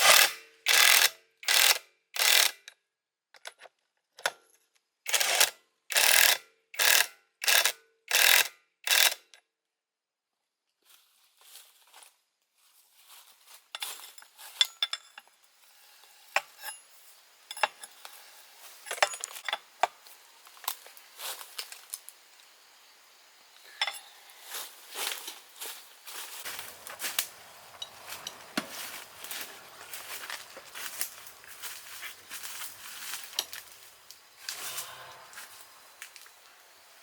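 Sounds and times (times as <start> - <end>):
hand tool working metal: 0.0 - 1.7, 16.3 - 20.0, 23.6 - 36.3
parts clicking and clattering: 13.8 - 15.4, 16.3 - 20.8, 25.0 - 36.4.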